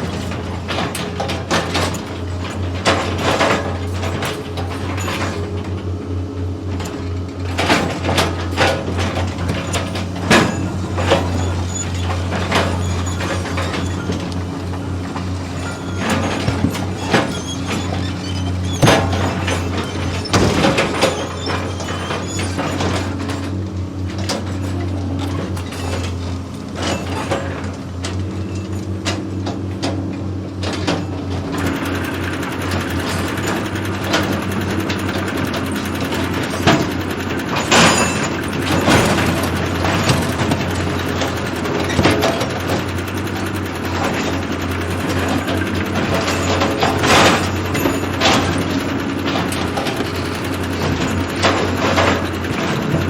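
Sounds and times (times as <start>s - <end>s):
machinery engine drone: 0.0s - 53.0s
metal clanks and knocks: 0.0s - 53.0s
metallic clanks and clicks: 30.6s - 53.0s.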